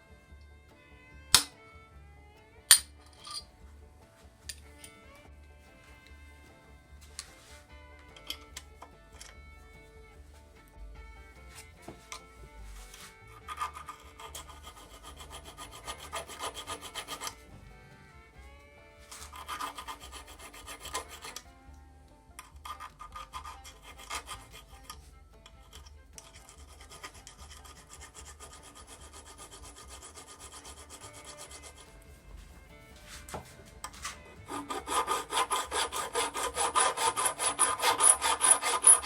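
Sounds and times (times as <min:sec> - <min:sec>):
file rasping on metal: 0:11.6 - 0:17.7, 0:19.1 - 0:21.5, 0:22.4 - 0:39.0.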